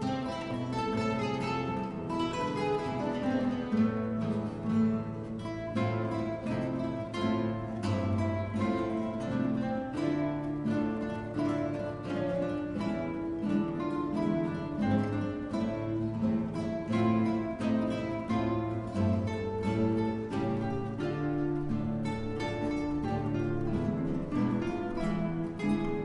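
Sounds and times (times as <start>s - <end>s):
acoustic guitars playing: 0.0s - 26.0s.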